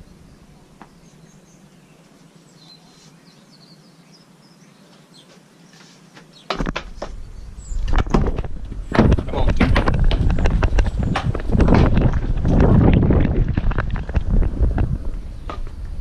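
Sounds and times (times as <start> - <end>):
faint bird chirps: 0.0 - 6.5
camera handling rumble and knocks: 7.8 - 15.8.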